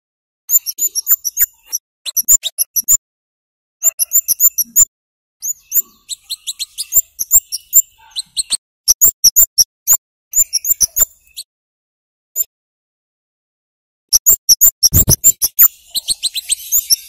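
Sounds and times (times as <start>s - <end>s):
bird giving sharp chip notes: 14.2s - 17.0s.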